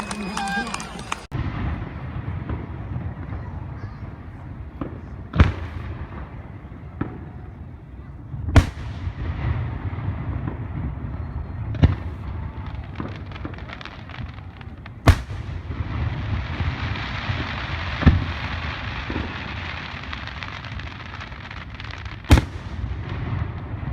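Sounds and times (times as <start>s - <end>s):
firework crackling: 0.0s - 23.9s
fireworks banging: 0.0s - 23.9s.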